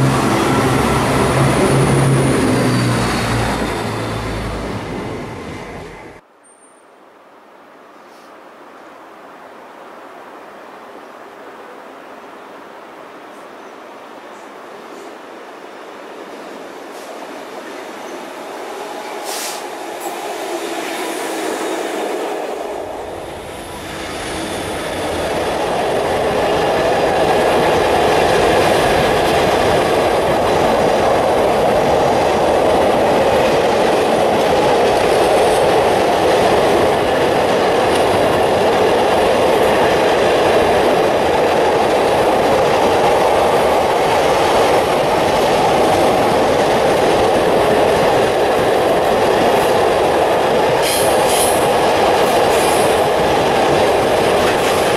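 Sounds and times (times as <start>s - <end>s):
diesel locomotive passing: 0.0s - 6.2s, 16.2s - 54.9s.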